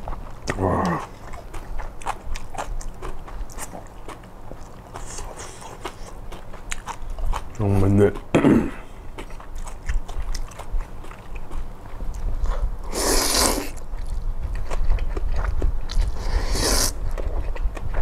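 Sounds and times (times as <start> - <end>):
crunching and chewing: 0.0 - 18.0
noodle slurps: 12.9 - 13.8, 16.1 - 17.0.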